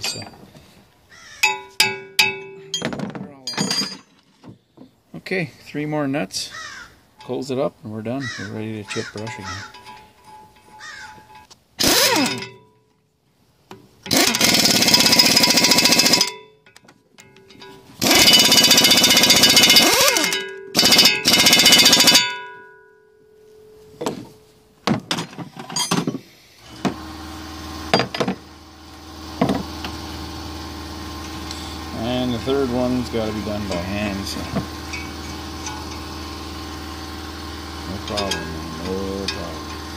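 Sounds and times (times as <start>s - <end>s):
impact wrench hammering: 1.4s - 4.1s, 9.0s - 12.6s, 14.1s - 22.7s, 24.8s - 30.4s, 31.1s - 39.9s
steady low hum: 25.6s - 39.9s.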